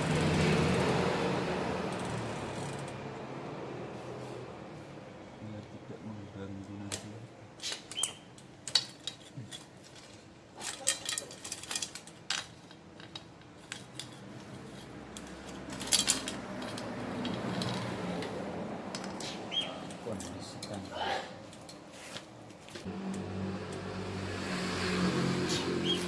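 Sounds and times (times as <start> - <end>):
metallic chain clicks and clinks: 8.7 - 18.3.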